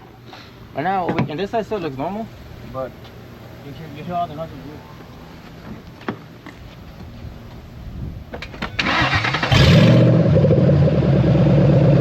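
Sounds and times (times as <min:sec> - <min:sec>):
engine starter cranking: 0:08.6 - 0:10.1.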